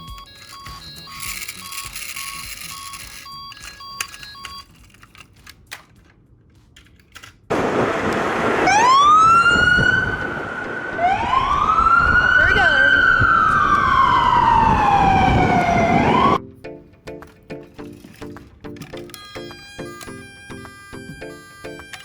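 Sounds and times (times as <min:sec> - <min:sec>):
toy short repeating beeps: 0:00.0 - 0:04.7
toy siren wailing: 0:00.0 - 0:04.7, 0:08.7 - 0:16.4, 0:19.1 - 0:22.0
loud rush of noise: 0:07.5 - 0:16.3.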